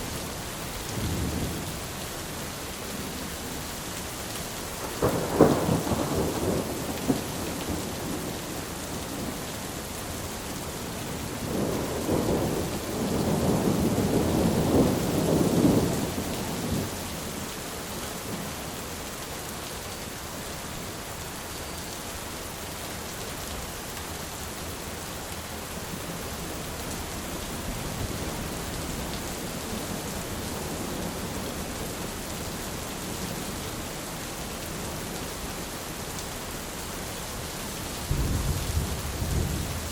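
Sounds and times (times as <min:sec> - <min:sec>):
heavy rain: 0:00.0 - 0:39.9
thunder rumbling: 0:04.9 - 0:09.5, 0:11.2 - 0:17.0, 0:38.1 - 0:39.9.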